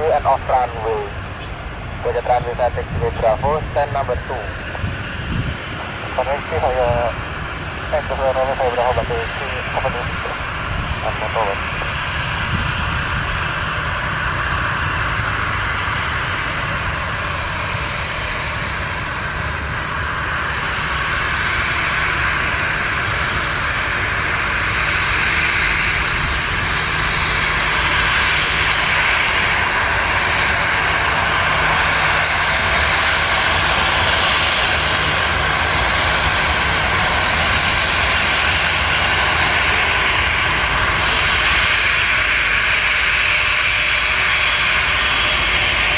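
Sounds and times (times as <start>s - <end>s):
airliner engines running: 0.0s - 45.9s.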